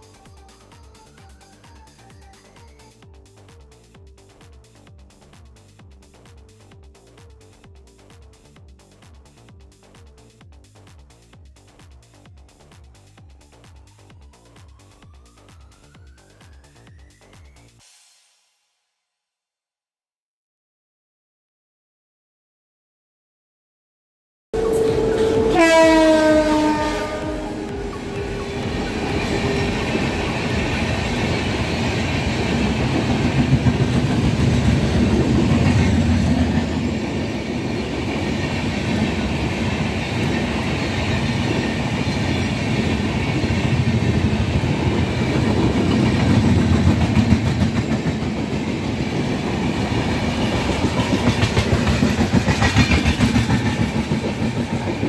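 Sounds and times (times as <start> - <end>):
locomotive horn: 24.6 - 30.2
passing train wheels clattering: 24.6 - 55.0.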